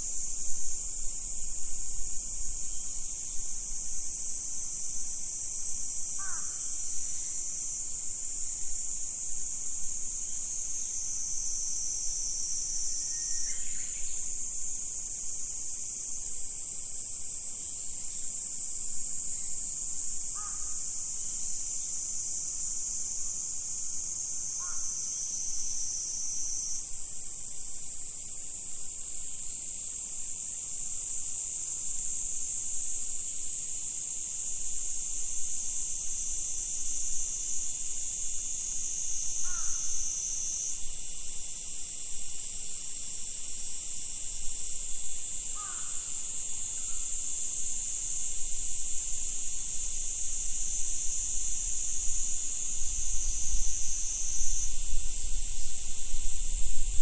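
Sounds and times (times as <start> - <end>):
insects shrilling: 39.4 - 40.8, 45.3 - 57.0.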